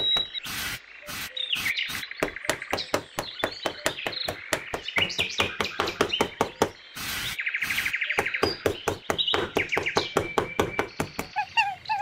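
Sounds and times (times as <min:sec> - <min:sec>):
trowel scraping sand: 0:00.0 - 0:02.2, 0:07.0 - 0:07.9
birds chirping: 0:00.0 - 0:12.0.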